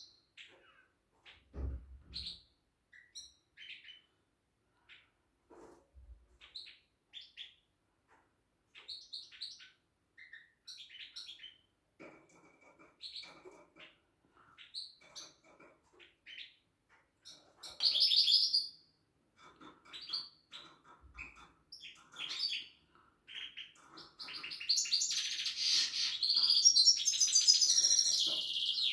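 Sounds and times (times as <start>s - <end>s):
small songbird chirping: 17.2s - 18.8s, 19.9s - 28.9s.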